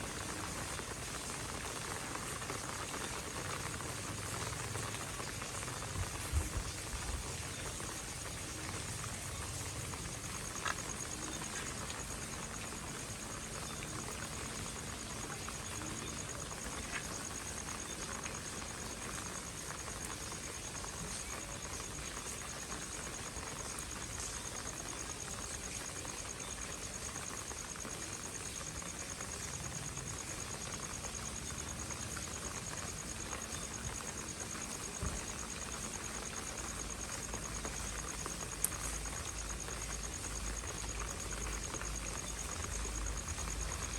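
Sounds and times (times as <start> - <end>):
rain on pavement: 0.0 - 43.9
faint ticks: 9.3 - 12.7, 29.3 - 43.9.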